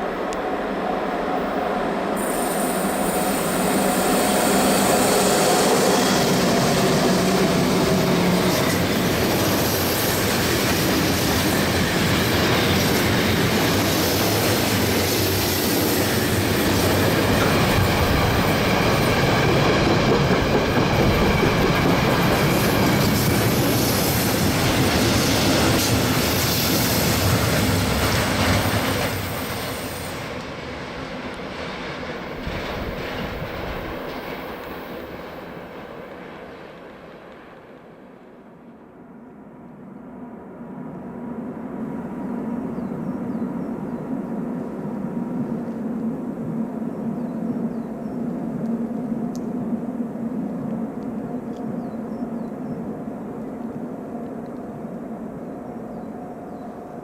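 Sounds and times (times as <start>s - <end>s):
train wheels rumbling on rails: 0.0s - 38.3s.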